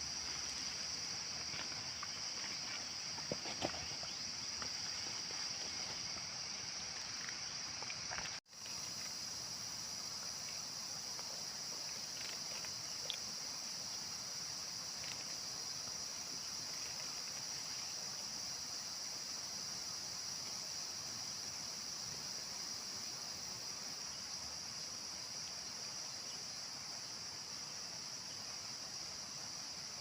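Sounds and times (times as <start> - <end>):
insect chorus drone: 0.0 - 30.0.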